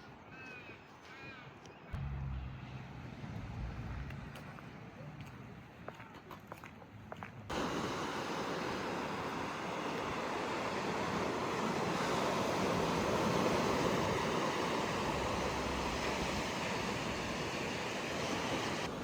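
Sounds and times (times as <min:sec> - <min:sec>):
ocean waves on beach: 0:07.5 - 0:19.0.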